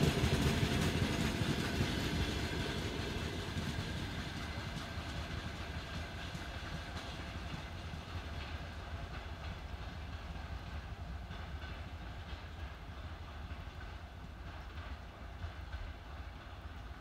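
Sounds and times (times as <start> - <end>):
train wheels rolling on rails: 0.0 - 17.0.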